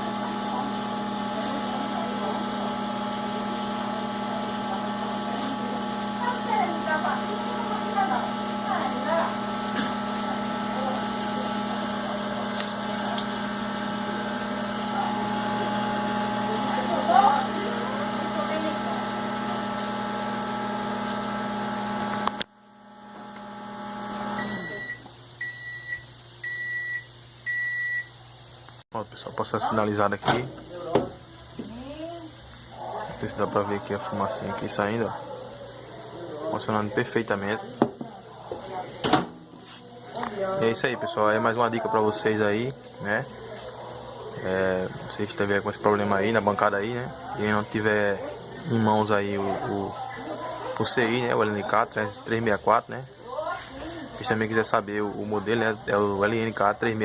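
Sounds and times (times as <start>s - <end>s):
microwave oven humming: 0.0s - 57.0s
microwave beeps: 23.0s - 28.2s.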